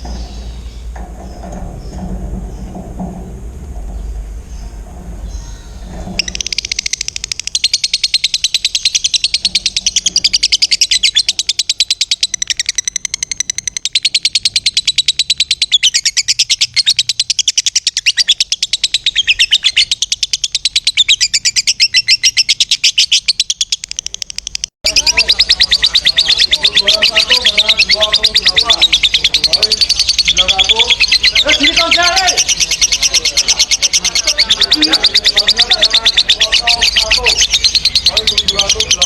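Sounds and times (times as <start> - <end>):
lovebird chattering trill: 0.0 - 39.0.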